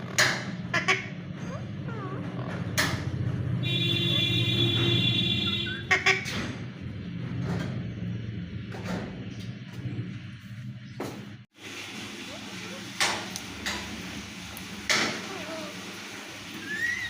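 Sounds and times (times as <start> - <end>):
constant low rumble: 0.0 - 11.5
parrot harsh squawks: 0.7 - 1.6, 5.3 - 6.3, 16.6 - 17.0.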